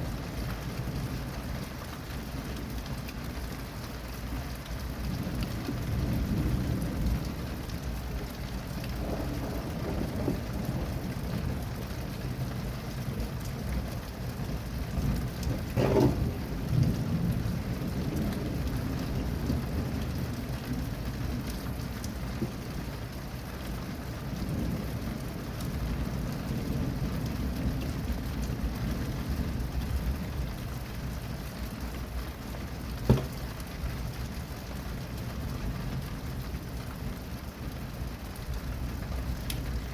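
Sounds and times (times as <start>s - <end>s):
steady rain: 0.0s - 39.9s
low rumbling thunder: 4.9s - 31.5s.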